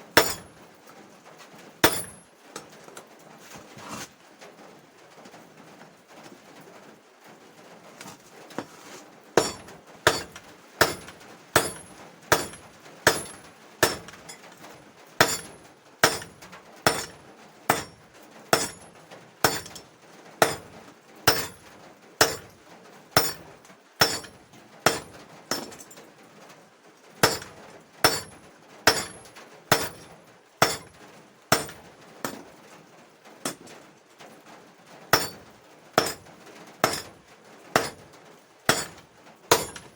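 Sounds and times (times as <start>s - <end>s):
hammer striking steel on anvil: 0.2s - 0.5s, 1.8s - 2.2s, 9.4s - 14.2s, 15.2s - 18.8s, 19.4s - 19.8s, 20.4s - 20.7s, 21.3s - 21.6s, 22.2s - 22.5s, 23.2s - 25.9s, 27.2s - 30.9s, 31.5s - 32.4s, 33.5s - 33.7s, 35.2s - 35.4s, 36.0s - 36.2s, 36.8s - 37.1s, 37.8s - 38.0s, 38.7s - 39.9s.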